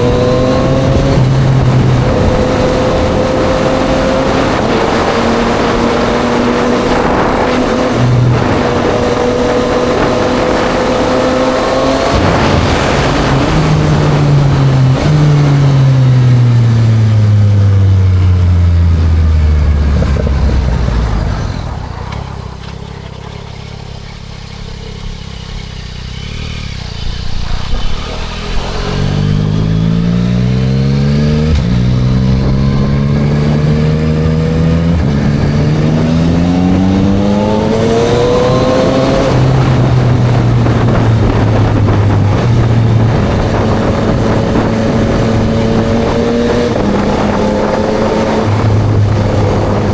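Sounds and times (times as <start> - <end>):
motorcycle engine revving: 0.0 - 49.9
motorcycle upshifts: 0.0 - 49.9
wind and road noise: 0.0 - 49.9.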